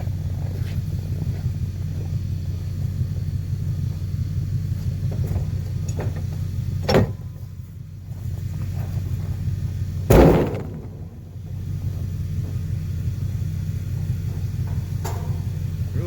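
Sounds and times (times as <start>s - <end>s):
vehicle engine idling: 0.0s - 16.0s
loud bangs: 10.1s - 11.7s.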